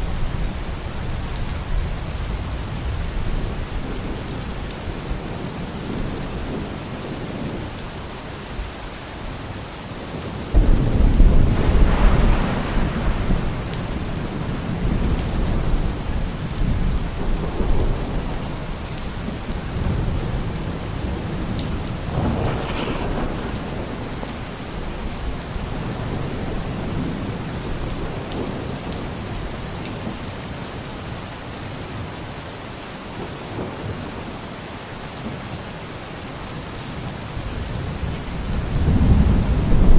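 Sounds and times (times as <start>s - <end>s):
steady rain falling: 0.0s - 39.9s
thunder rumbling: 10.1s - 29.4s, 37.4s - 39.9s.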